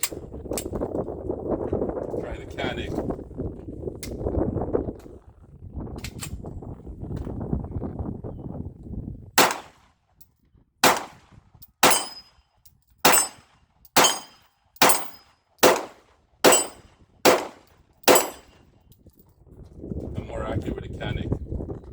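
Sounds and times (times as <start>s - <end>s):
gun handling clicks: 6.0s - 6.4s, 9.4s - 9.8s, 13.1s - 18.6s
pistol shots: 9.4s - 9.8s, 10.8s - 12.3s, 13.0s - 18.6s.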